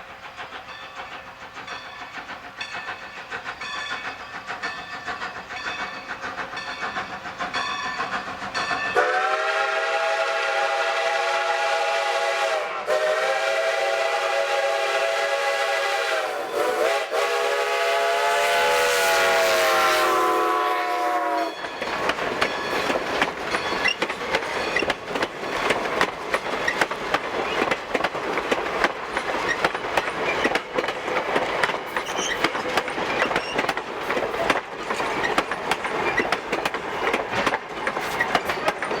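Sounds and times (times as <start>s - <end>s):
train wheels clicking over rail joints: 0.0s - 39.0s
steam locomotive whistle blasts: 9.0s - 21.6s.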